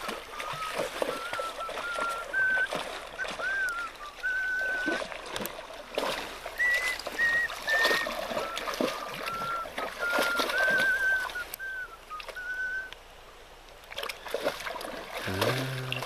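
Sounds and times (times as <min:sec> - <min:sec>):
person whistling a tune: 0:00.0 - 0:05.0, 0:06.6 - 0:13.0
creek trickling: 0:00.0 - 0:16.0.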